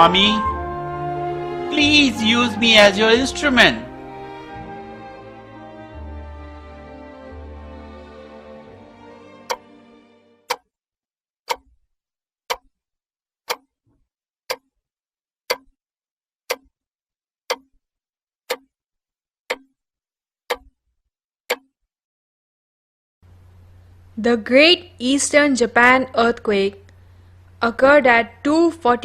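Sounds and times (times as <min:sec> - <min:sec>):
music: 0:00.0 - 0:10.5
clock ticking: 0:09.5 - 0:09.7, 0:10.5 - 0:10.7, 0:11.5 - 0:11.8, 0:12.5 - 0:12.7, 0:13.5 - 0:13.7, 0:14.5 - 0:14.7, 0:15.5 - 0:15.8, 0:16.5 - 0:16.7, 0:17.5 - 0:17.8, 0:18.5 - 0:18.7, 0:19.5 - 0:19.7, 0:20.5 - 0:20.8, 0:21.5 - 0:21.7.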